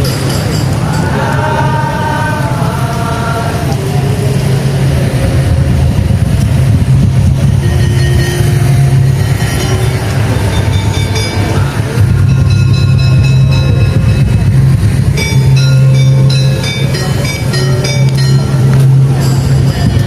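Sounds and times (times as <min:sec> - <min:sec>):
pitched melody notes: 0:07.3 - 0:20.0
percussion ensemble drumming: 0:08.1 - 0:20.0.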